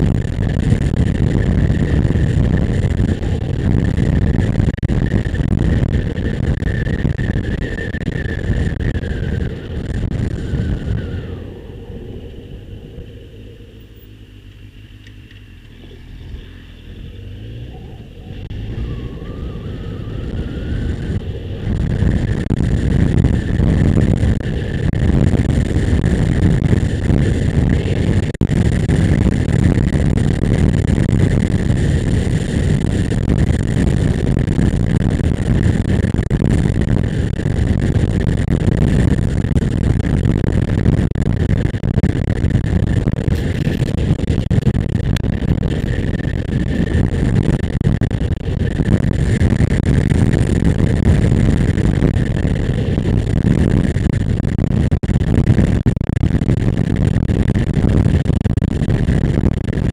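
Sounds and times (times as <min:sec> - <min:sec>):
rushing air: 0:00.0 - 0:36.0, 0:43.0 - 0:54.3
motorcycle engine rumble: 0:00.0 - 0:55.0.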